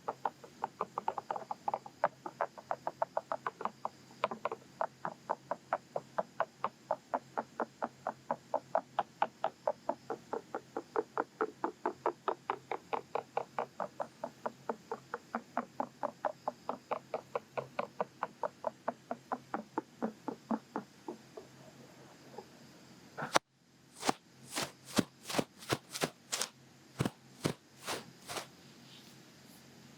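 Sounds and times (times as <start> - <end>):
ear pick scratching microphone: 24.0 - 28.5.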